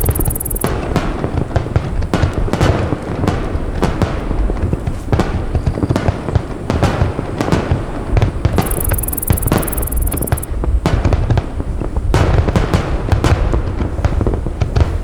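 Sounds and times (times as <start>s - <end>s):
firework shells bursting: 8.5s - 10.5s.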